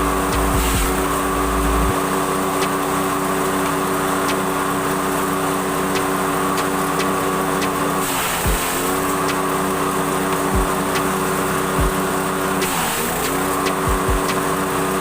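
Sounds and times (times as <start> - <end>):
heavy low rumble: 0.0 - 2.1
small engine droning: 0.0 - 15.0.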